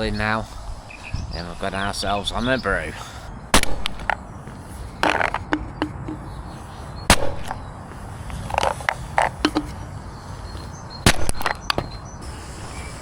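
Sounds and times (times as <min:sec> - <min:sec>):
sharp clicks and knocks: 0:05.0 - 0:06.3, 0:08.5 - 0:09.8.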